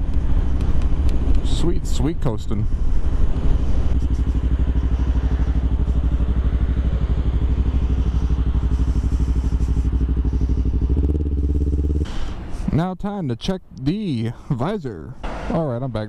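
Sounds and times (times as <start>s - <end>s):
motorcycle engine idling: 0.0s - 12.1s.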